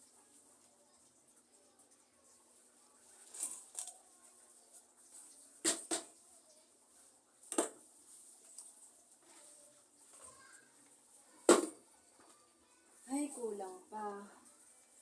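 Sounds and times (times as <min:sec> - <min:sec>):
clicks and knocks of handling pots: 0:05.6 - 0:06.2.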